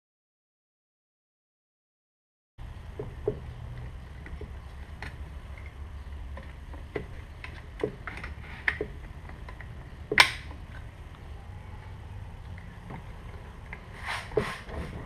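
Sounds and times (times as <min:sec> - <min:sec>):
steady low hum: 0:02.6 - 0:15.0
clicks and knocks of tools: 0:03.0 - 0:11.2.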